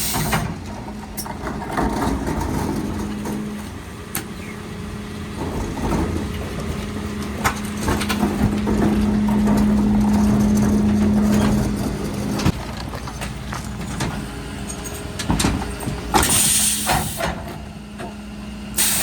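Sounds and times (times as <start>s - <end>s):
truck engine and compactor hum: 0.0s - 19.0s
air hiss bursts: 16.2s - 17.3s, 18.8s - 19.0s.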